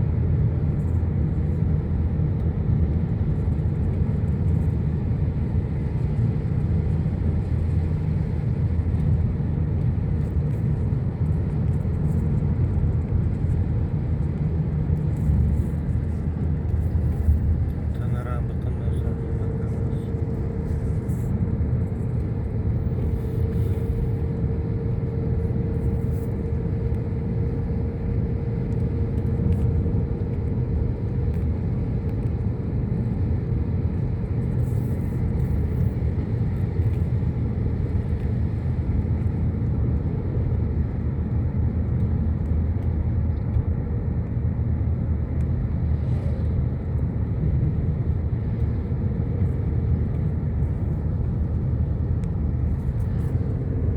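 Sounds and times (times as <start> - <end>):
faint steady hum: 0.0 - 53.9
vehicle engine and road rumble: 0.0 - 53.9.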